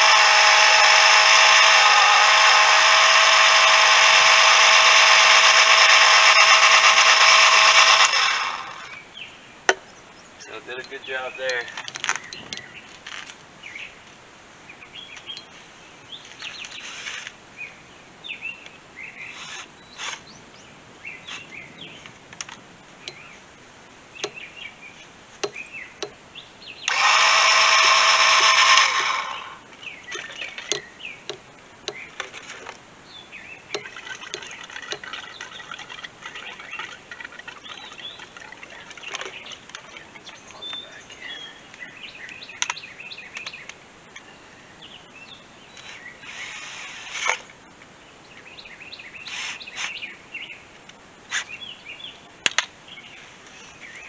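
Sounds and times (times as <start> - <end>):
loud multi-pitched whine: 0.0 - 9.0, 26.9 - 29.6
birds chirping: 0.0 - 54.0.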